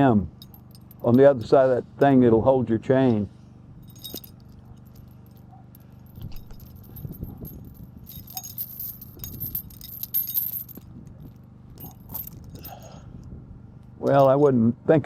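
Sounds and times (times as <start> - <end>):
steady low hum: 0.0 - 15.0
metal chain clinking and rattling: 0.4 - 1.6, 3.8 - 13.0, 14.0 - 14.5.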